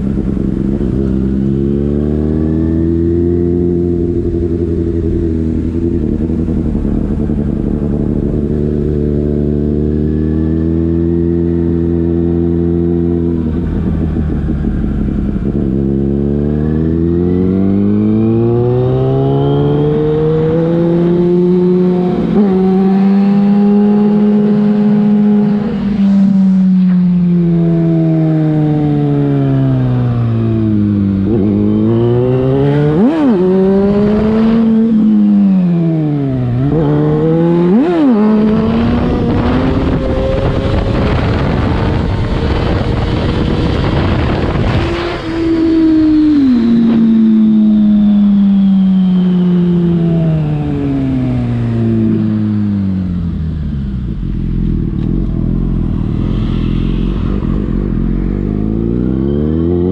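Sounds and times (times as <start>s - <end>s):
motorcycle engine revving: 0.0s - 59.9s
rushing wind noise: 17.5s - 59.9s.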